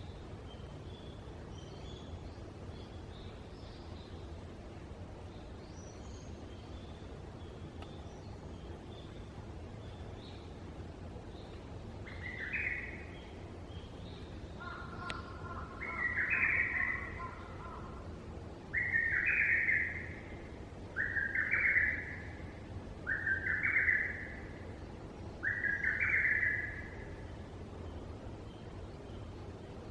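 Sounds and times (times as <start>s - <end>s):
bird calling: 14.6s - 18.1s, 21.0s - 22.4s, 23.1s - 24.5s, 25.4s - 27.0s.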